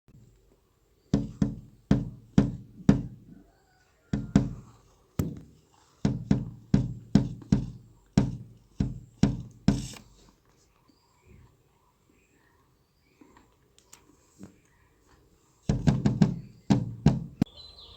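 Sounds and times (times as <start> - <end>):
sharp drum-like knocks: 1.2 - 3.2, 4.2 - 4.6, 6.1 - 9.9, 15.7 - 17.5.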